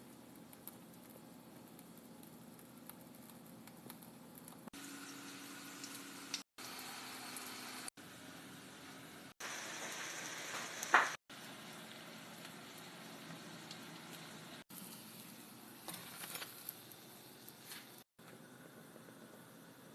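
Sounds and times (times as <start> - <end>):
eggplant sizzling in hot oil: 3.7 - 18.1.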